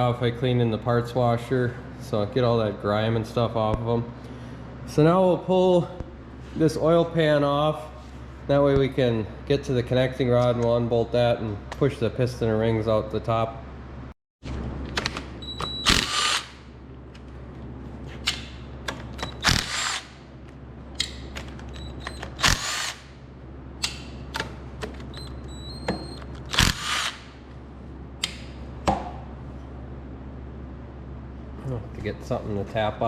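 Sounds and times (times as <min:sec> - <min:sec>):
cordless drill whirring: 0:15.7 - 0:16.6, 0:19.3 - 0:20.2, 0:22.1 - 0:23.1, 0:25.2 - 0:27.4.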